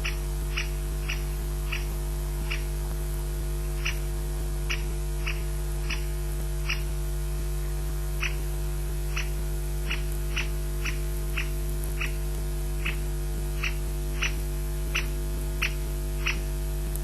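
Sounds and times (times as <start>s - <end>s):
animal high-pitched calls: 0.0s - 1.9s, 2.5s - 2.7s, 3.8s - 4.0s, 4.7s - 6.9s, 9.1s - 12.2s, 12.8s - 16.5s
electrical mains hum: 0.0s - 17.0s.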